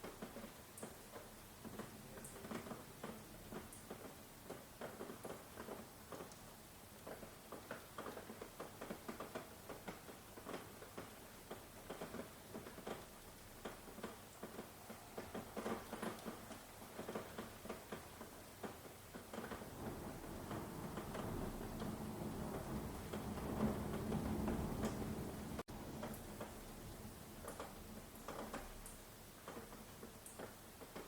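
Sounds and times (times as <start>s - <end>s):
raindrops pattering on a surface: 0.0s - 31.0s
low rumble of thunder: 19.5s - 27.4s.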